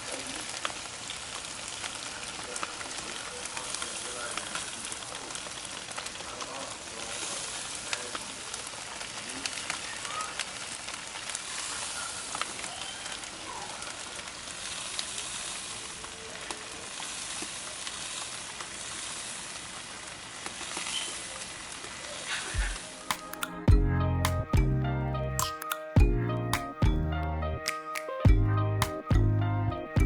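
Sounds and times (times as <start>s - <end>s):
bacon sizzling and popping: 0.0s - 23.6s.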